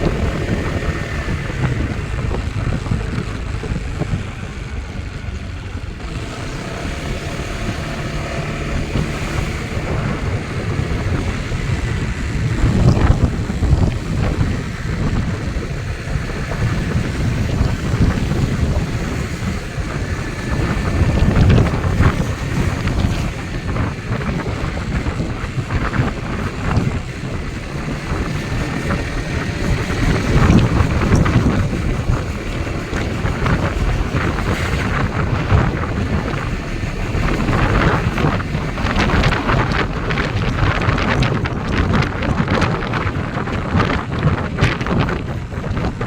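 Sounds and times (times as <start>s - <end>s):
strong wind buffeting microphone: 0.0s - 46.0s.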